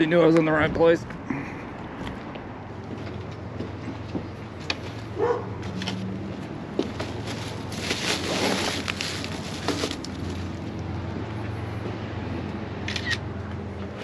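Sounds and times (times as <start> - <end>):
rustling: 6.8 - 10.4.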